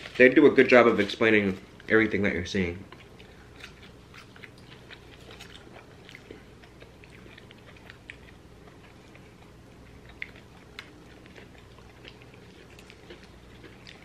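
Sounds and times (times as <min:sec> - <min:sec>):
people chewing with wet smacks: 0:02.9 - 0:14.0.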